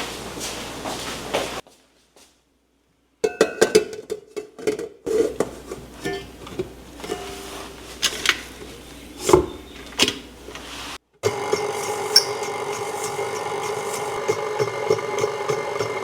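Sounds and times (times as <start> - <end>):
kitchen utensils scraping: 3.7 - 16.0
motor-like hum: 5.6 - 16.0.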